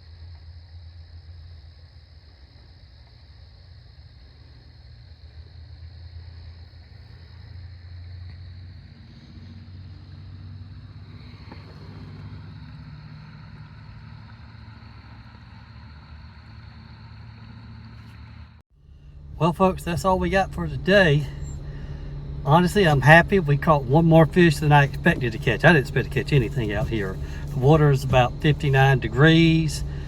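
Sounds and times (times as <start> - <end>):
outboard motor running: 4.3 - 30.0.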